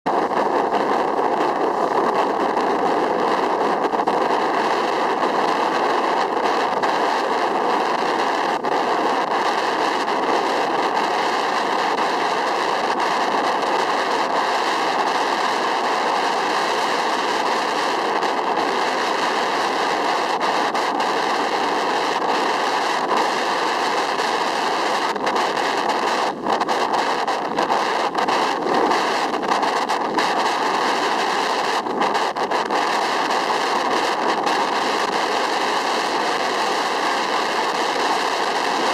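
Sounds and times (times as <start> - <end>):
wind rushing on microphone: 0.1 - 38.9.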